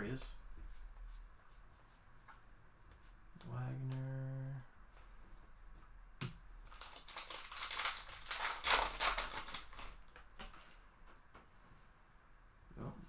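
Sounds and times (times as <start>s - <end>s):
wrapper and cards rustling: 6.6s - 10.9s.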